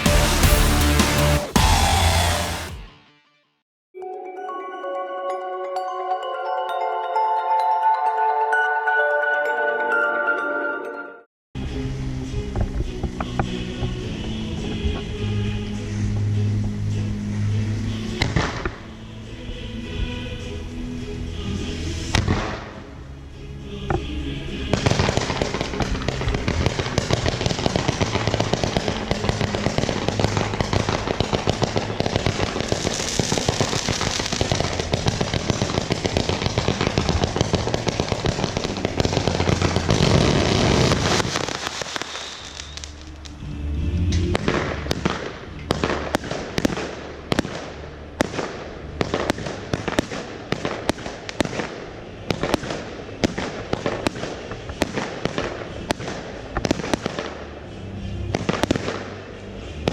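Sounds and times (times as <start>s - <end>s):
fireworks bangs and crackling: 0.0s - 2.8s, 18.1s - 18.8s, 22.0s - 22.8s, 24.6s - 43.4s, 44.2s - 59.9s
sharp firework bangs: 24.8s - 43.3s, 44.3s - 57.3s.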